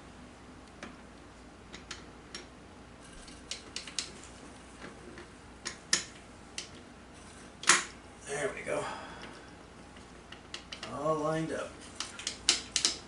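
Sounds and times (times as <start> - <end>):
light metal clicks and taps: 12.0 - 13.0.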